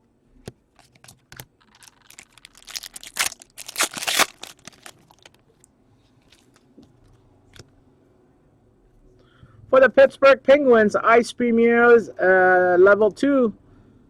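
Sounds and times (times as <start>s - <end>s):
foil wrapper tearing and crinkling: 0.8s - 5.4s.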